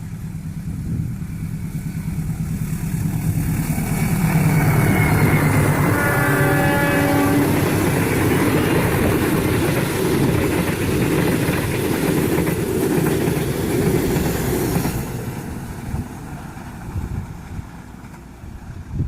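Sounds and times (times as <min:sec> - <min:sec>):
train wheels rushing on rails: 0:00.0 - 0:19.0.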